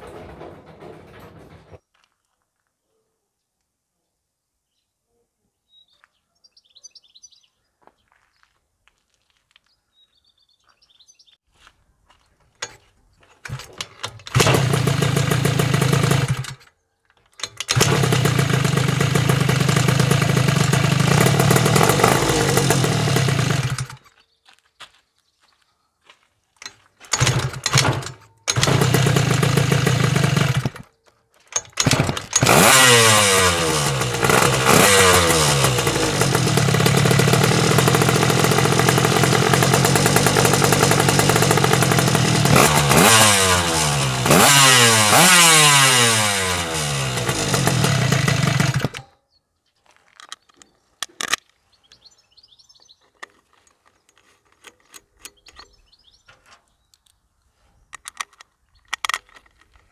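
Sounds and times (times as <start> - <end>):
two-stroke scooter engine revving: 13.5 - 16.6, 17.4 - 24.0, 27.1 - 30.8, 31.6 - 49.0.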